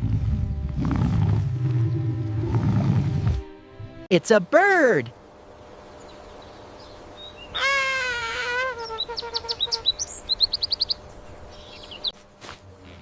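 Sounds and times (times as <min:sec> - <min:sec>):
long falling bird call: 0:06.0 - 0:11.0.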